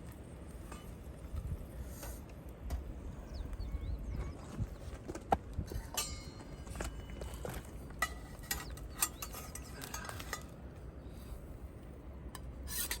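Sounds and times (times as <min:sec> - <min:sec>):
metal utensils clinking on cookware: 0:08.0 - 0:10.5.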